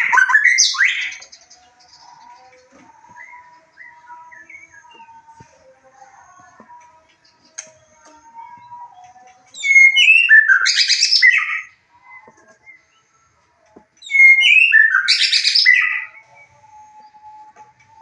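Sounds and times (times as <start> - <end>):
bird singing whistles and chatter: 0.0 - 5.5, 8.4 - 13.1, 14.0 - 18.0.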